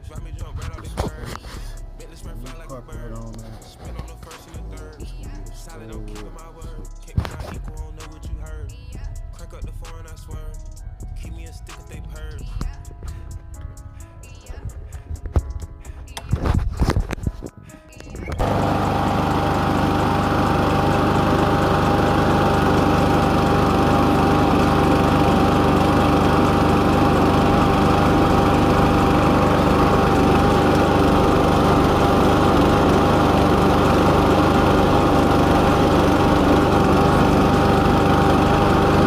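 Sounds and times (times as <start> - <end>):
lawn mower engine running: 18.3 - 39.0.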